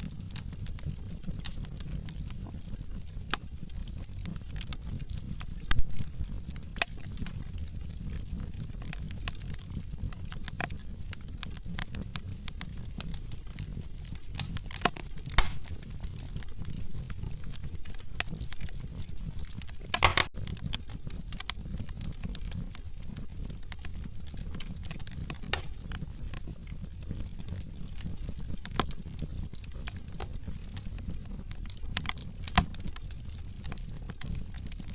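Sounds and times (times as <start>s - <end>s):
fire crackling and popping: 0.0s - 34.9s
logs burning with low rumble: 0.0s - 34.9s.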